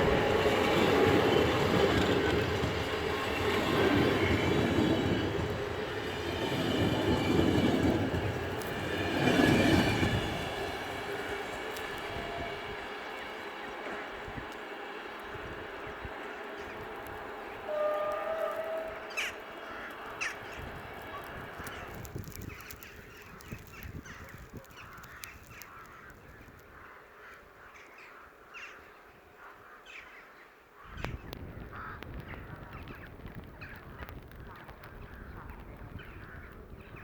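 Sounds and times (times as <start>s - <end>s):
brief steady tone: 17.7s - 19.2s.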